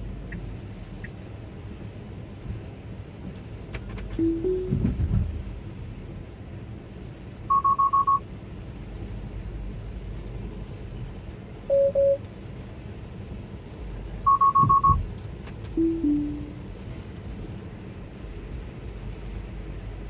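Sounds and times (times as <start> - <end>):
car road and cabin rumble: 0.0 - 20.0
car alert beeps: 4.2 - 5.0, 7.5 - 8.2, 11.7 - 12.2, 14.3 - 15.0, 15.8 - 16.6.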